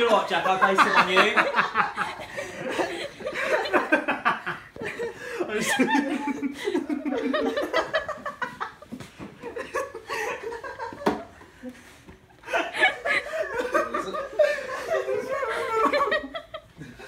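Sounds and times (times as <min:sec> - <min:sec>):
group of people laughing: 0:00.0 - 0:17.0.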